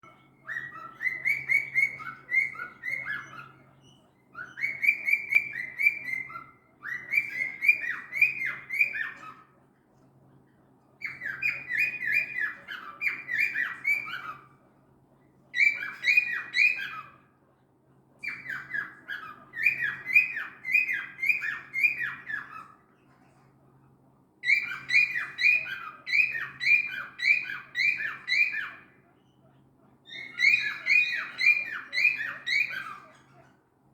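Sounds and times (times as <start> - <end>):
cockatiel shrill chirps: 0.4 - 3.6, 4.4 - 9.4, 11.0 - 14.4, 15.6 - 17.2, 18.2 - 22.8, 24.4 - 28.9, 30.1 - 33.2.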